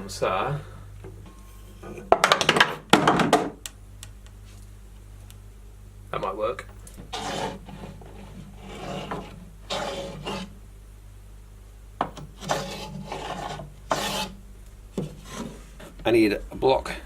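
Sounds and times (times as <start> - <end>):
steady low hum: 0.0 - 17.0
wood scraping against wood: 6.9 - 10.6, 12.0 - 16.2.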